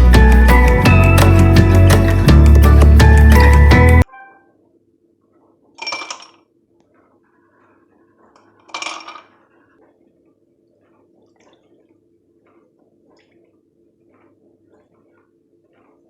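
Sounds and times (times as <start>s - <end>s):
kitchen handling noise: 5.8s - 6.4s, 8.7s - 9.4s.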